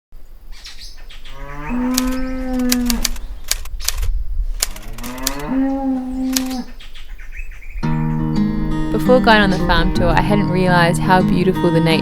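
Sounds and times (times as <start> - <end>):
cow mooing: 1.3 - 3.1, 4.7 - 6.8
sharp clicks: 1.9 - 5.5, 6.2 - 6.7.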